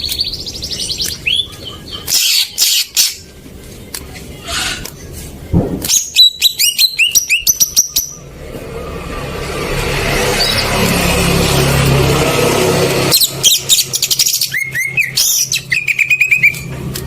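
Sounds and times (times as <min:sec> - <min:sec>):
bird singing: 0:00.0 - 0:03.3, 0:05.9 - 0:08.3, 0:13.1 - 0:16.7.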